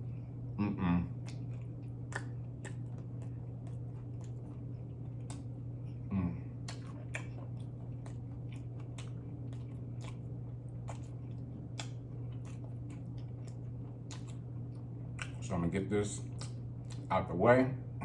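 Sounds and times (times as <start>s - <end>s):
steady low hum: 0.0s - 18.0s
person humming mm: 0.6s - 1.2s, 6.1s - 6.5s
close chewing: 1.1s - 17.1s
wet mouth clicks and smacks: 1.2s - 4.4s, 10.9s - 14.4s, 15.2s - 15.4s, 16.4s - 17.1s.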